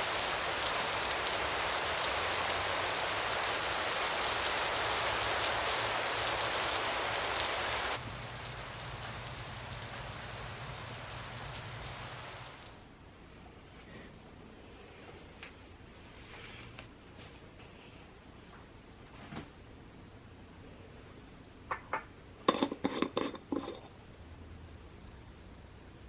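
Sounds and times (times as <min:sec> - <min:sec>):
steady rain falling: 0:00.0 - 0:12.9.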